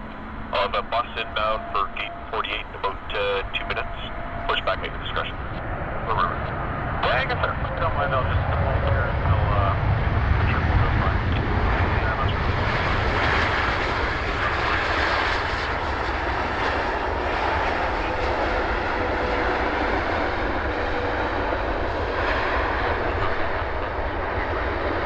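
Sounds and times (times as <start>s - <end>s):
faint steady whine: 0.0s - 15.8s
jet engines running: 0.0s - 25.0s.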